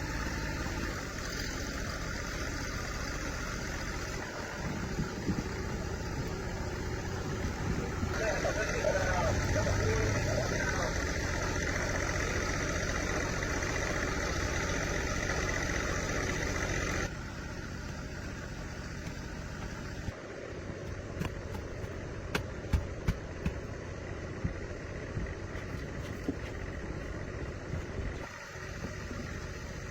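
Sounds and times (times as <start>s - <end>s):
engine running: 0.0s - 29.9s
sharp knocks and taps: 20.9s - 23.7s.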